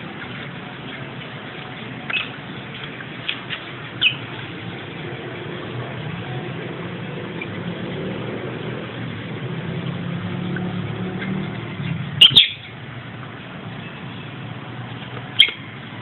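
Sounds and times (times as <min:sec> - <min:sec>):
lovebirds chirping: 0:04.0 - 0:04.3, 0:11.8 - 0:12.7.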